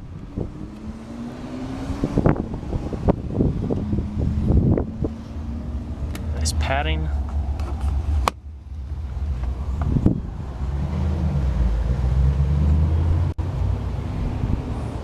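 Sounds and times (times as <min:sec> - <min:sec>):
car engine idling: 0:03.3 - 0:15.0.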